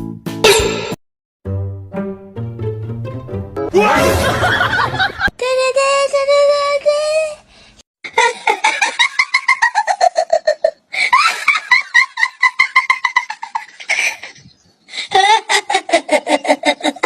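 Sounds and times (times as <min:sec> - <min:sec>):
high-pitched laughter: 0:08.0 - 0:17.0.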